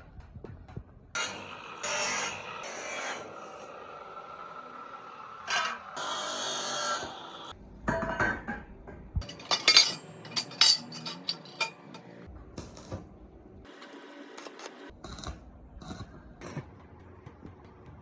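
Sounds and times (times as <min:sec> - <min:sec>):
metal tools clinking: 0:09.2 - 0:12.1.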